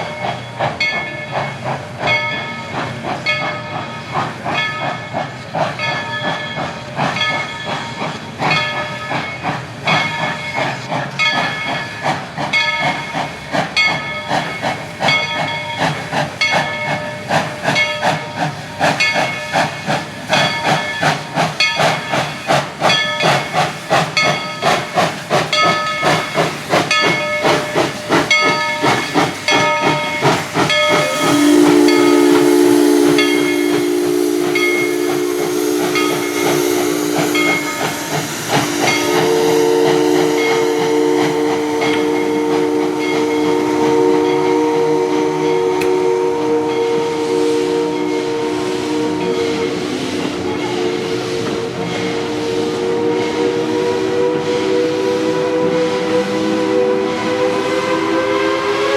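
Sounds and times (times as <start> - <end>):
steam locomotive exhaust chuffs: 0.0 - 58.9
steam whistle chord: 29.5 - 58.9.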